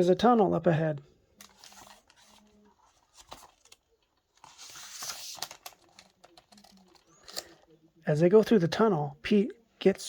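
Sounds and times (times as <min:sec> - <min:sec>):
paper rustling: 0:01.4 - 0:07.5.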